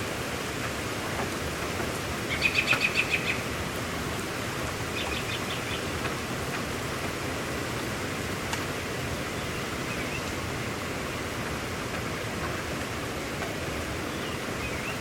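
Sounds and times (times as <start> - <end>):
steady rain: 0.0 - 15.0
bird chirping: 2.3 - 3.5, 5.0 - 5.9, 14.1 - 15.0.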